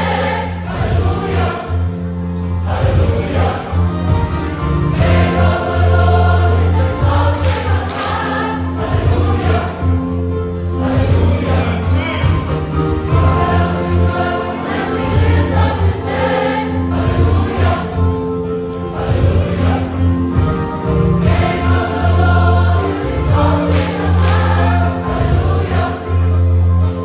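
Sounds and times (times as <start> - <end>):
choir singing a hymn: 0.0 - 27.0
steady low bass: 2.7 - 7.9, 10.8 - 14.2.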